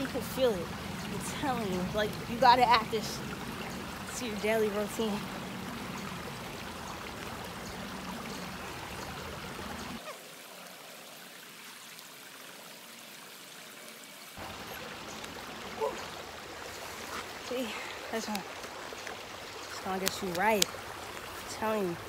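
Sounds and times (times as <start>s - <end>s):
stream of water running: 0.0s - 22.0s.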